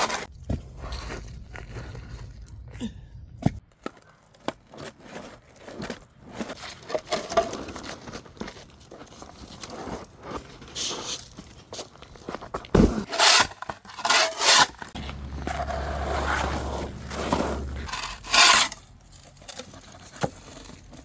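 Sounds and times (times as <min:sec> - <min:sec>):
shovel scraping and crunching ice: 0:00.0 - 0:02.3, 0:04.2 - 0:21.0.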